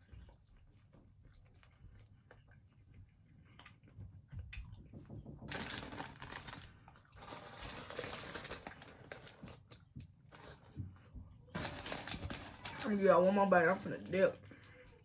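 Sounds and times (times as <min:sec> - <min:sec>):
soft chewing with mouth clicks: 0:00.0 - 0:05.2, 0:08.7 - 0:11.6, 0:14.4 - 0:15.0.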